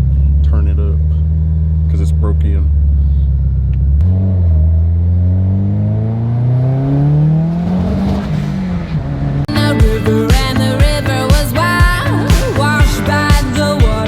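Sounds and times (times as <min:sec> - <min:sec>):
turbocharged car engine accelerating: 0:00.0 - 0:09.5.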